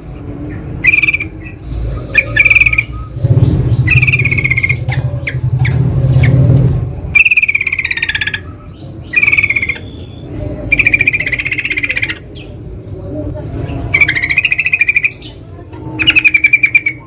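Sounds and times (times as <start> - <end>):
bulbuls singing: 0.0 - 17.0
low rumble: 1.6 - 7.2.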